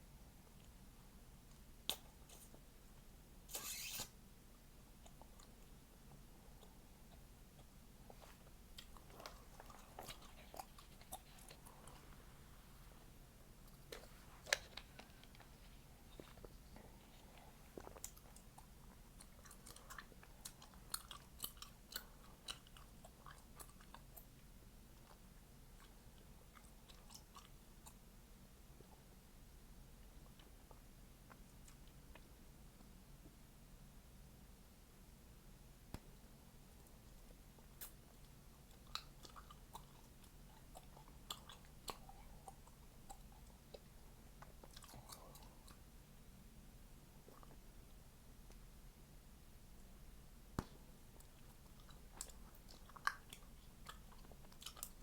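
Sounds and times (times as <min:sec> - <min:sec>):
gum chewing with wet pops: 0:05.0 - 0:12.1, 0:13.6 - 0:28.1, 0:30.0 - 0:33.4, 0:35.9 - 0:45.9, 0:47.2 - 0:48.7, 0:50.5 - 0:55.0
gum chewing mouth clicks: 0:37.1 - 0:45.8, 0:50.6 - 0:55.0.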